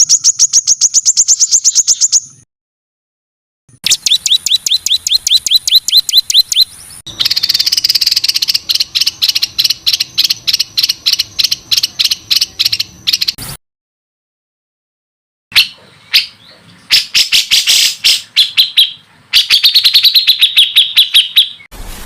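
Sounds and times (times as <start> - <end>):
songbird rapid repeated notes: 0.0 - 2.4, 3.8 - 13.6.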